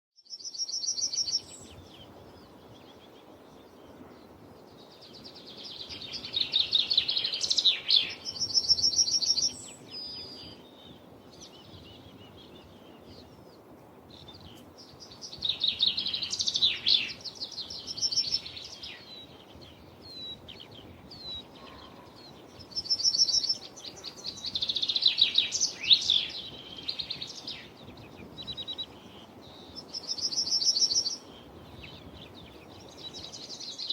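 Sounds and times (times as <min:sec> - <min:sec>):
songbird trilling: 0:05.2 - 0:11.0, 0:14.3 - 0:33.9.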